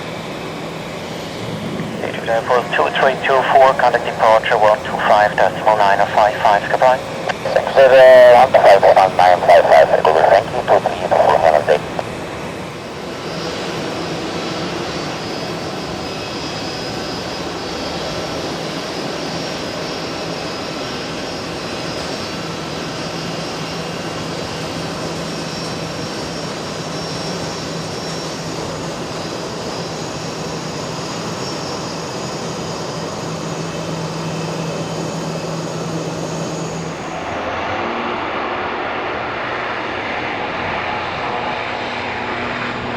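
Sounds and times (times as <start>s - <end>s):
turboprop aircraft drone: 0.0s - 42.9s.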